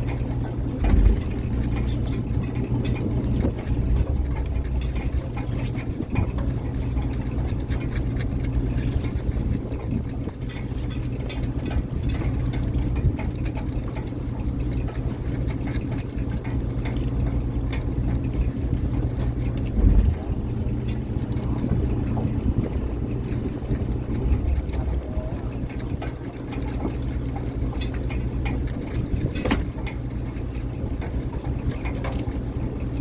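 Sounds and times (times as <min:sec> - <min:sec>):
boat engine humming: 0:00.0 - 0:33.0
small clicks and knocks: 0:00.0 - 0:33.0
low thump: 0:00.8 - 0:02.4, 0:19.8 - 0:20.6.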